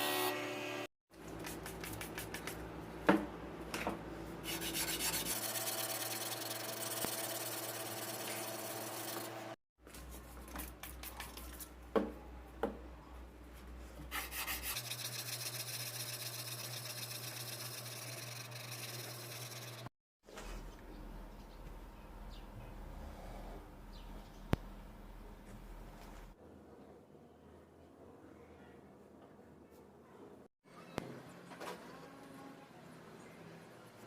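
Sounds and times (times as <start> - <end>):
file strokes by hand: 4.4 - 9.4, 14.0 - 19.7.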